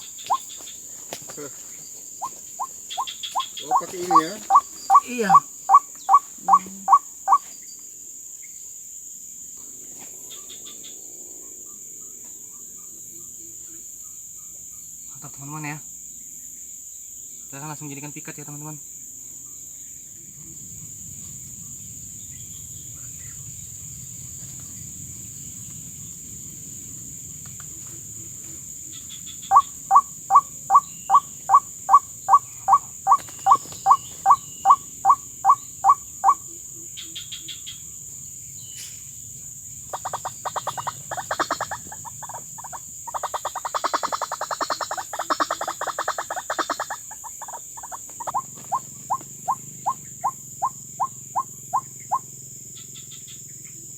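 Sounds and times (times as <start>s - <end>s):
waterhen croaking calls: 0.0s - 0.6s, 2.2s - 7.4s, 28.9s - 36.4s, 39.9s - 52.3s
crickets shrilling: 0.0s - 53.9s.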